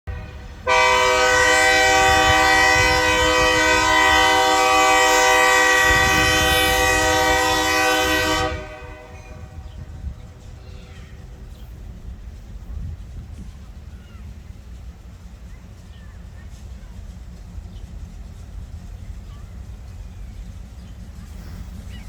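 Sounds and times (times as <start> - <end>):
low train rumble: 0.0 - 22.0
locomotive air horn blast: 0.1 - 9.6.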